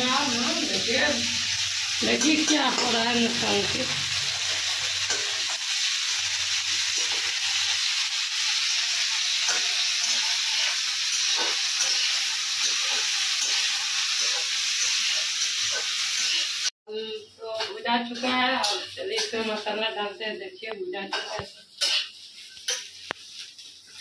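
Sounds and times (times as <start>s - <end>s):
okra sizzling in hot oil: 0.0s - 16.8s, 17.4s - 24.0s
spatula scraping and clinking pan: 0.2s - 5.8s, 6.5s - 16.7s, 17.6s - 19.7s, 21.1s - 24.0s.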